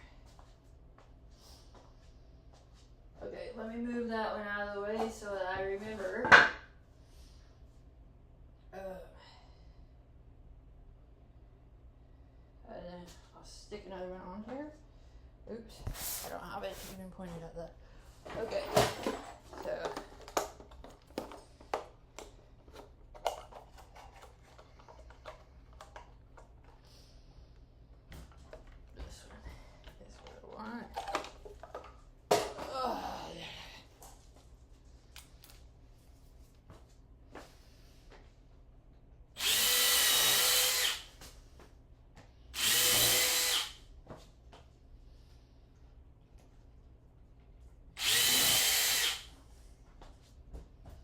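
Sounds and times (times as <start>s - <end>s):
low steady hum: 0.0s - 51.0s
power tool motor whine: 39.4s - 41.1s, 42.6s - 43.8s, 48.0s - 49.3s.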